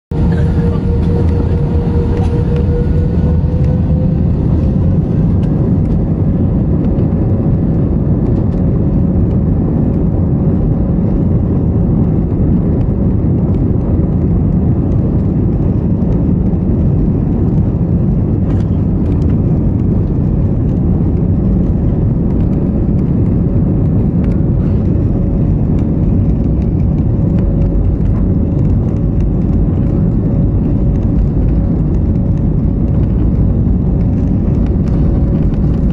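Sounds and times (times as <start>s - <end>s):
airliner engines roaring: 0.1s - 35.9s.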